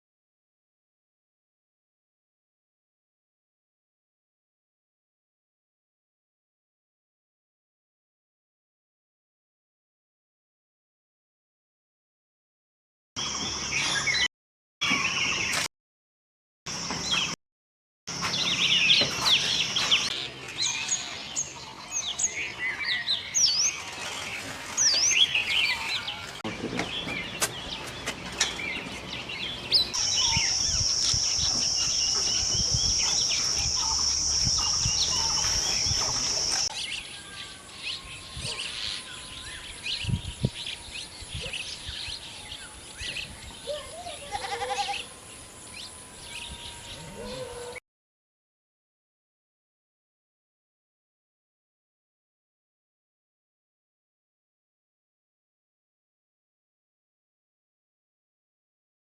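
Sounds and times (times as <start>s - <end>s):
small birds chirping: 18.1s - 47.7s.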